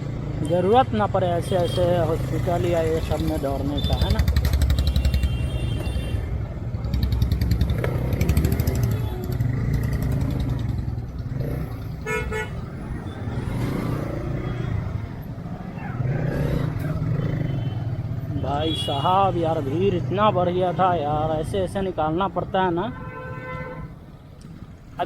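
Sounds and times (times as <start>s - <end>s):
motorcycle engine running: 2.1s - 5.7s, 6.6s - 18.9s
vehicle horn toot: 4.8s - 6.3s, 12.0s - 12.6s.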